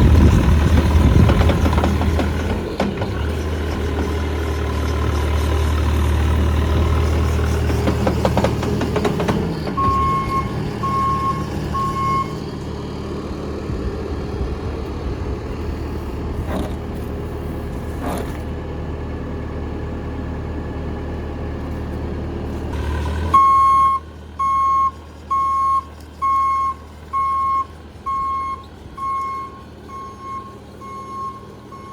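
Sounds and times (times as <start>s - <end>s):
diesel engine running: 0.0s - 31.9s
backup alarm beeping: 9.8s - 12.4s, 23.4s - 31.9s.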